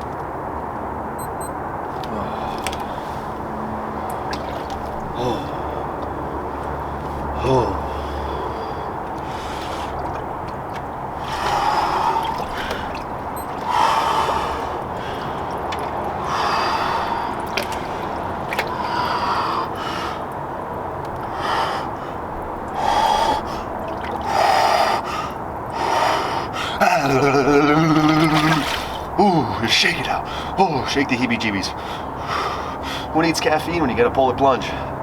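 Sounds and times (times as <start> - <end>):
person breathing hard: 2.0 - 10.3, 11.1 - 20.5, 21.2 - 27.4, 30.2 - 30.6, 31.7 - 33.2.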